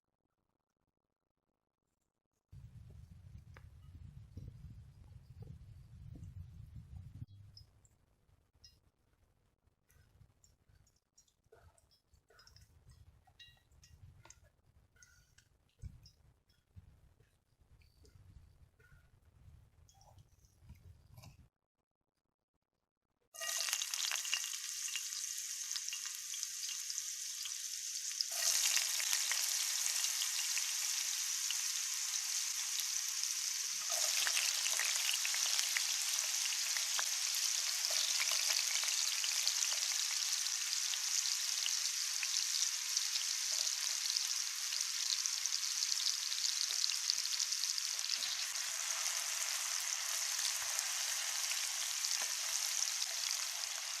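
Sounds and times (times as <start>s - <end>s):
food sizzling in a pan: 23.4s - 54.0s.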